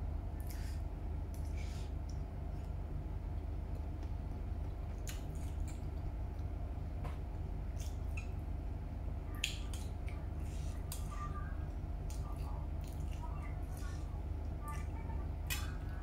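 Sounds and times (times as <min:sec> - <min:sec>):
steady low hum: 0:00.0 - 0:16.0
wet chewing mouth sounds: 0:00.4 - 0:02.7, 0:12.0 - 0:14.1.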